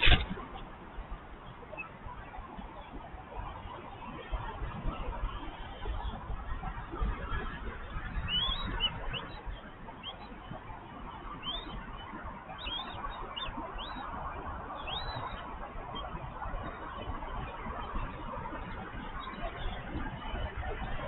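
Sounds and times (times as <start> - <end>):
high bird chirps: 12.6 - 14.0, 14.8 - 15.4.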